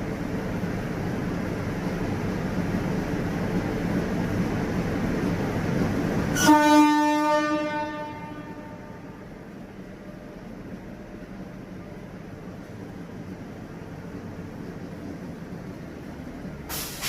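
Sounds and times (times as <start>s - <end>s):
train rumbling: 0.0s - 17.0s
locomotive horn blast: 6.3s - 9.3s.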